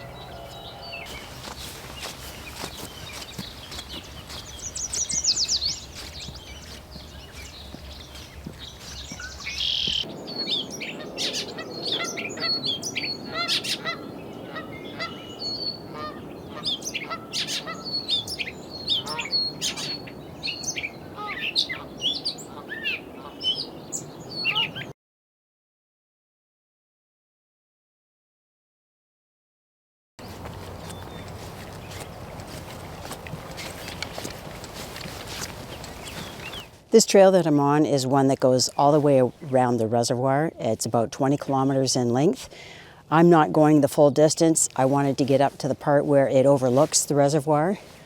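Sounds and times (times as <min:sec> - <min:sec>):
geese honking: 0:00.0 - 0:10.1
bird chirps and calls: 0:00.0 - 0:24.9, 0:30.2 - 0:36.7
songbird trill: 0:00.0 - 0:24.9, 0:30.2 - 0:42.4.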